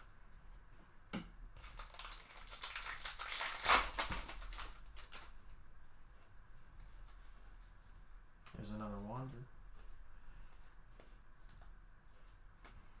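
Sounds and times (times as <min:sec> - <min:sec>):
wrapper crinkling: 0:01.6 - 0:05.4.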